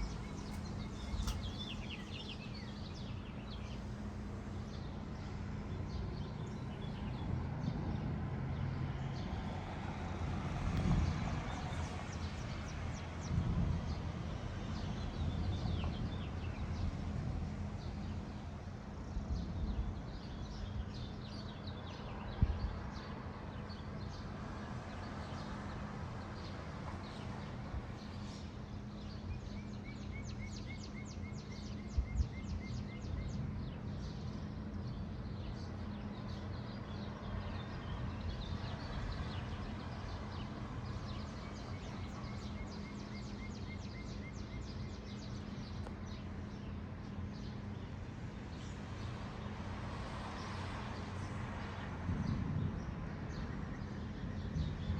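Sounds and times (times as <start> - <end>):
birds chirping and singing: 0.0 - 3.9.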